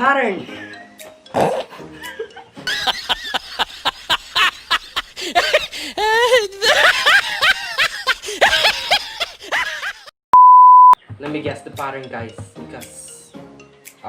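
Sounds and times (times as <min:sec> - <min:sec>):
people laughing: 0:01.9 - 0:10.1.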